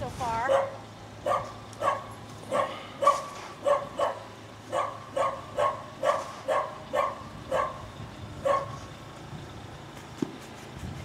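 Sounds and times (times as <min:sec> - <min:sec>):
dog barking: 0:00.5 - 0:07.8, 0:08.4 - 0:08.8.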